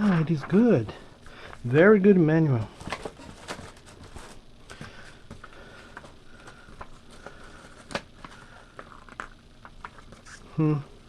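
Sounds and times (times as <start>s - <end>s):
paper and packaging rustling: 2.7s - 10.4s.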